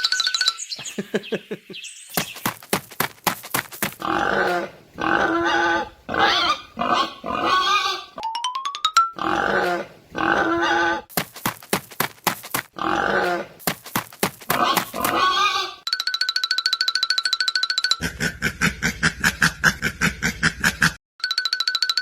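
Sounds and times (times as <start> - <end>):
pig oinking and grunting: 4.0 - 8.2, 9.2 - 11.1, 12.8 - 13.6, 14.5 - 15.8, 18.0 - 21.0
background music: 8.2 - 9.8.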